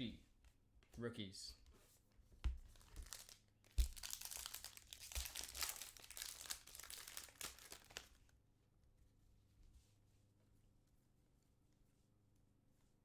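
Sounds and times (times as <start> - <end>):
foil wrapper crinkling and tearing: 2.7 - 8.3.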